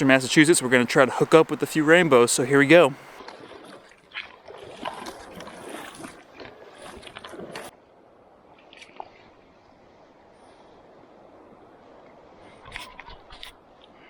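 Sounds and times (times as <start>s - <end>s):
faint hiss: 0.0s - 3.2s
river water sloshing and splashing: 0.0s - 14.0s.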